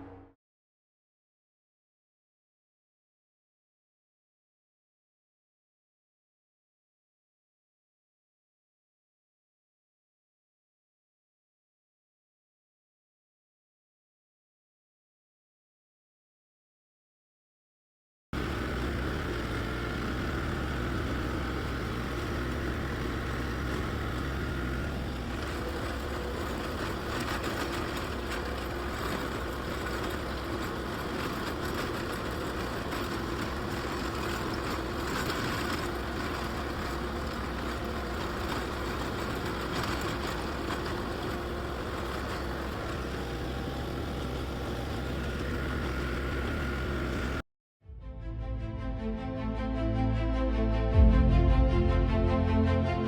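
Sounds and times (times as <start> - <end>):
engine running under load: 18.4 - 47.4
rotary tiller churning ground: 18.4 - 47.4.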